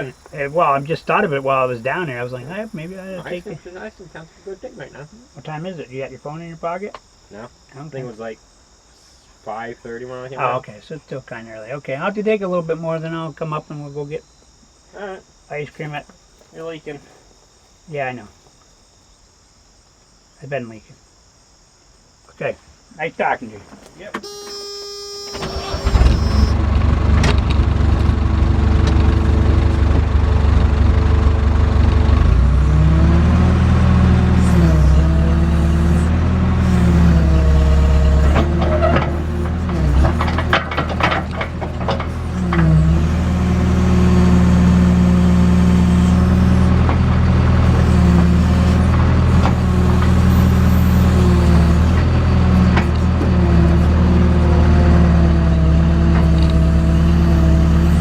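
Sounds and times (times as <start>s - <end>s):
diesel engine under hydraulic load: 0.0s - 3.6s, 24.2s - 58.0s.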